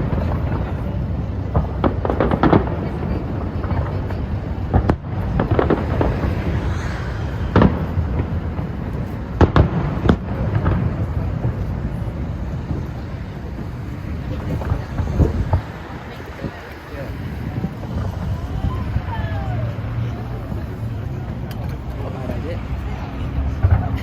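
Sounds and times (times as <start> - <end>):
continuous low rumble: 0.0 - 24.0.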